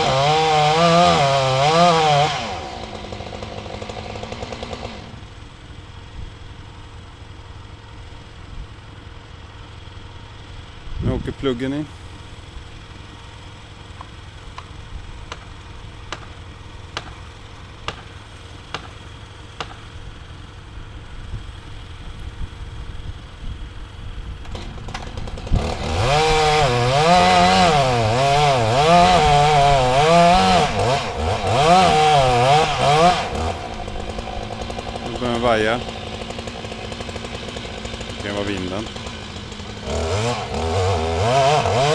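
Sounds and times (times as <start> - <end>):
chainsaw cutting wood: 0.0 - 5.4, 12.8 - 20.3, 24.4 - 41.9.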